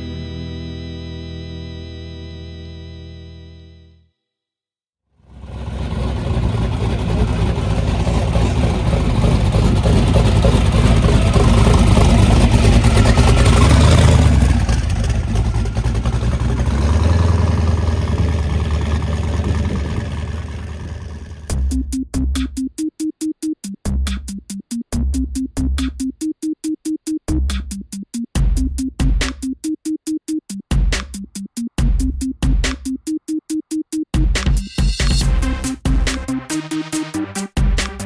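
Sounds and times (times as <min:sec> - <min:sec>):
loud car engine running: 0:05.2 - 0:21.8.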